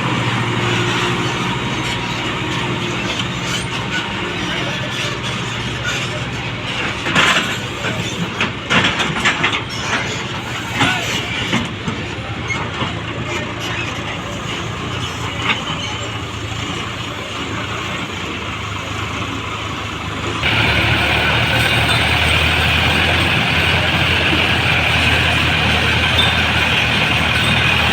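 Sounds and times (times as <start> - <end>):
tractor diesel engine under load: 0.0 - 27.9
trailer knocks and rattles: 20.4 - 27.9.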